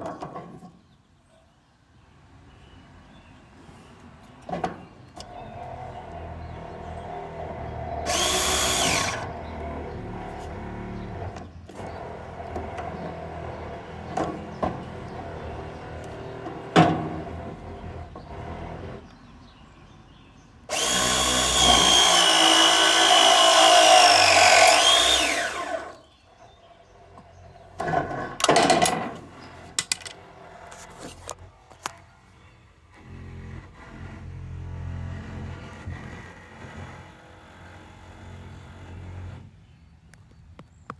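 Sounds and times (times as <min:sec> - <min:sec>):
hydraulic press tool motor whine: 0:07.2 - 0:16.8, 0:20.7 - 0:26.0.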